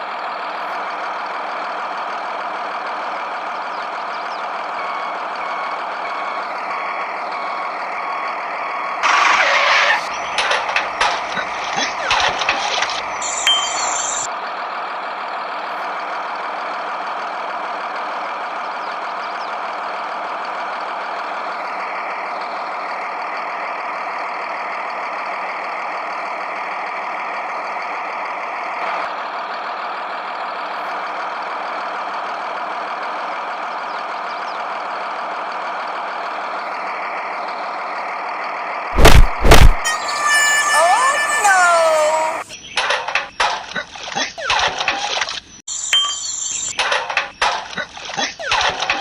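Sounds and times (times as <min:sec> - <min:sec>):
mechanical engine running: 0:09.0 - 0:14.3
loud short bangs: 0:39.0 - 0:39.9.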